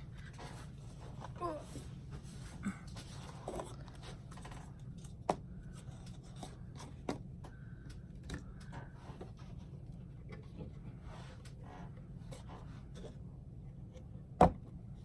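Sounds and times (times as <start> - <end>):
steady low hum: 0.0 - 15.0
soft rubbing and scraping: 8.7 - 13.2.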